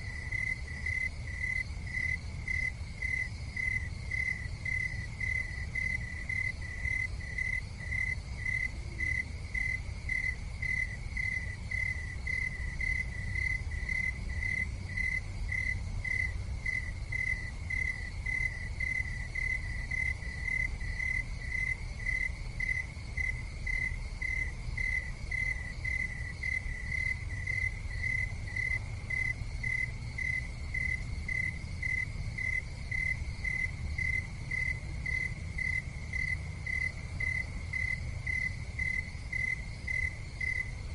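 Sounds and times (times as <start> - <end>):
insect chirping: 0.0 - 40.9
low steady rumble: 0.0 - 40.9.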